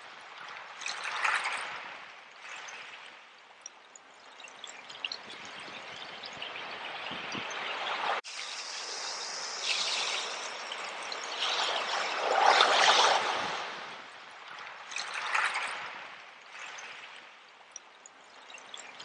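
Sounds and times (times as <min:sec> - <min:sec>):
ocean waves washing ashore: 0:04.7 - 0:17.6.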